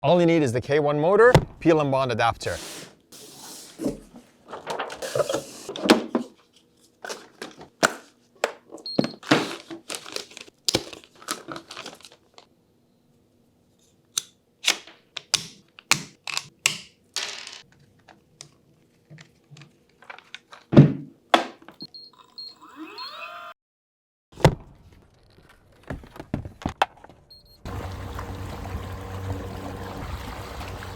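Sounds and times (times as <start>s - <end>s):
sharp clicks snaps and knocks: 14.2s - 16.9s
water rushing: 27.7s - 30.9s.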